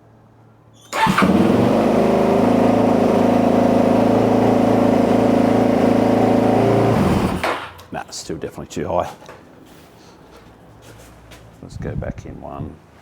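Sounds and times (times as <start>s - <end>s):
motorcycle engine starting: 0.8s - 7.9s
motorcycle engine fast idle: 0.9s - 7.8s.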